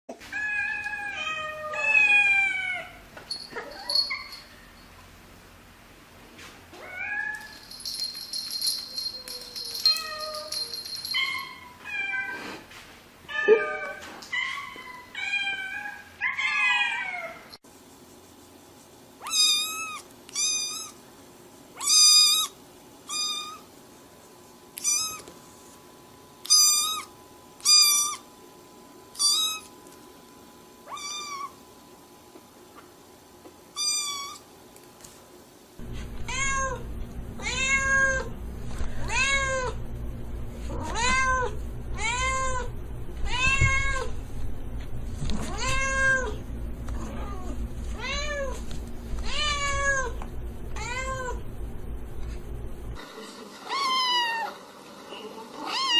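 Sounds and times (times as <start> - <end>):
low hum: 35.8 - 53.0
cat meowing: 55.6 - 55.9.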